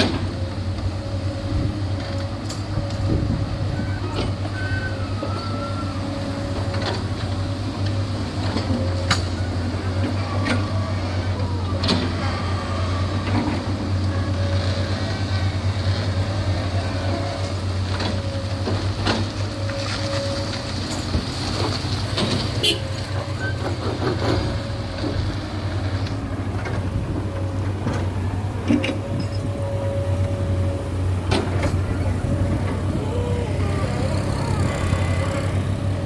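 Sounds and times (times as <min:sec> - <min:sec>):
heavy diesel machinery running: 0:00.0 - 0:36.0.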